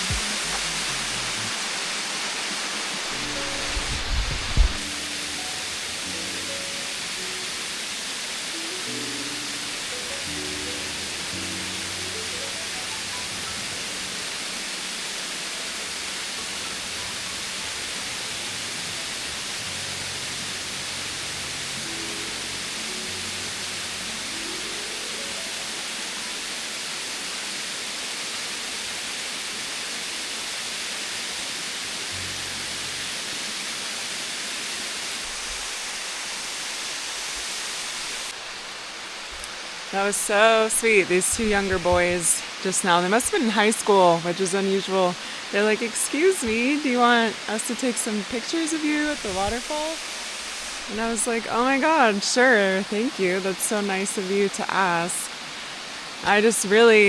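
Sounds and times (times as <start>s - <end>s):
waterfall pouring: 0.0s - 52.5s
faint background music: 2.5s - 26.5s, 39.9s - 50.1s.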